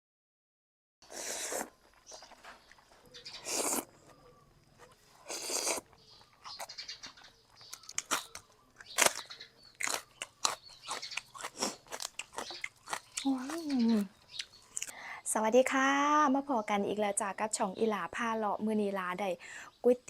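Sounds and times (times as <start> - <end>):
slurping noodles: 1.0 - 2.4, 3.4 - 3.9, 5.1 - 6.0
wet chewing: 1.0 - 15.0.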